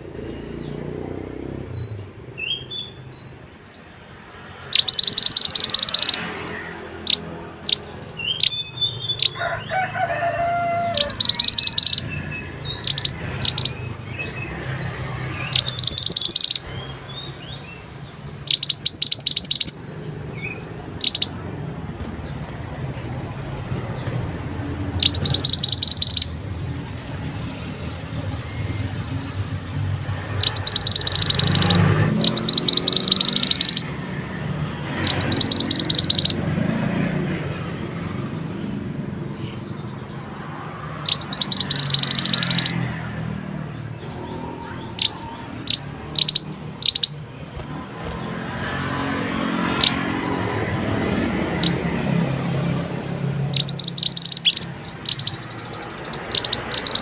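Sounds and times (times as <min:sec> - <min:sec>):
songbird fast trills: 0:04.6 - 0:09.4, 0:10.8 - 0:17.4, 0:18.3 - 0:21.4, 0:24.9 - 0:26.4, 0:30.3 - 0:34.0, 0:34.9 - 0:36.4, 0:41.0 - 0:42.9, 0:43.9 - 0:48.3, 0:49.6 - 0:50.0, 0:51.5 - 0:51.8, 0:53.3 - 0:57.0.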